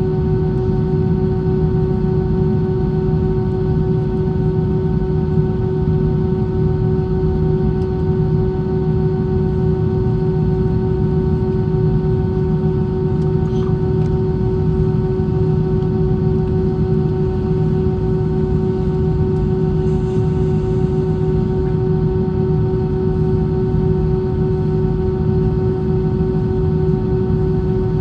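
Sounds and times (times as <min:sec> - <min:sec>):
constant hum tone: 0:00.0 - 0:28.0
airplane cabin noise: 0:07.7 - 0:28.0.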